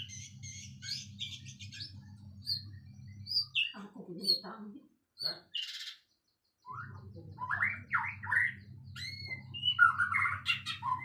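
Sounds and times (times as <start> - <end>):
low hum: 0.0 - 3.6
songbird chirping: 0.0 - 11.0.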